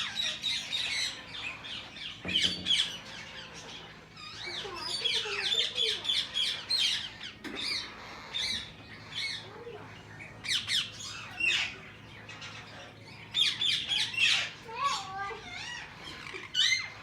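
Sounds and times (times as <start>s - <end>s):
parrots squawking: 0.0s - 17.0s.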